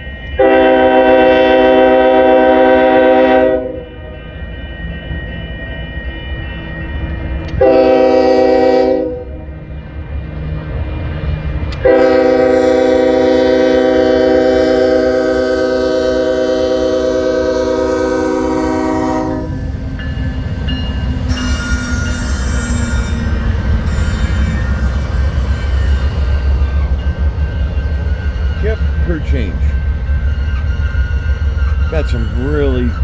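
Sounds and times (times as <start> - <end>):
train rumbling: 0.0 - 33.0
locomotive air horn chord: 0.3 - 4.1, 7.4 - 9.5, 11.8 - 19.7.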